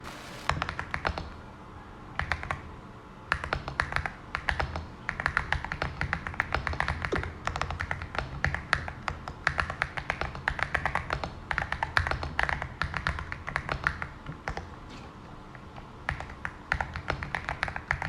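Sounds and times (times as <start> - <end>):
typing on mechanical keyboard: 3.3 - 14.6, 16.1 - 18.0.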